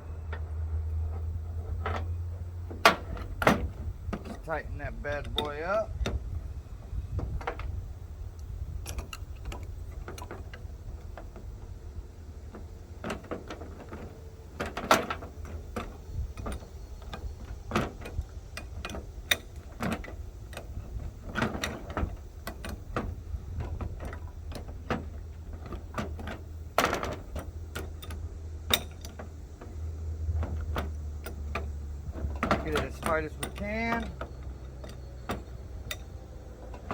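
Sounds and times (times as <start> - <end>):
steady low hum: 0.0 - 36.9
hand tools clicking and knocking: 2.7 - 6.2, 12.5 - 36.9.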